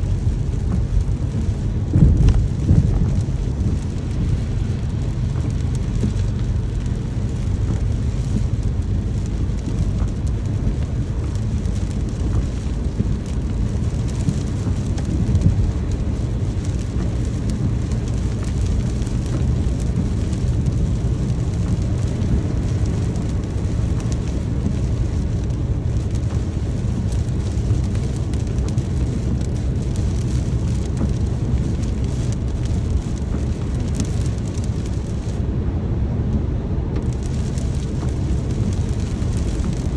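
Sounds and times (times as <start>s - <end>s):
deep rumble: 0.0s - 39.9s
steady rain pattering: 0.0s - 39.9s.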